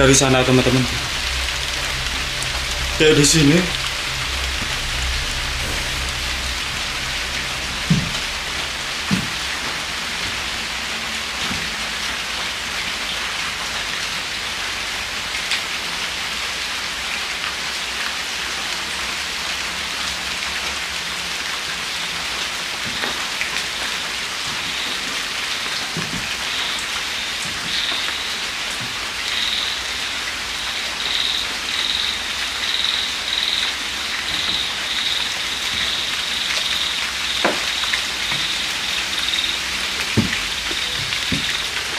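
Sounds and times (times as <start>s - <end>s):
high pulsing call: 0.0s - 10.7s
light drizzle hissing: 0.0s - 41.9s
drip-like knocks: 3.7s - 10.4s, 37.4s - 38.6s, 39.9s - 41.8s.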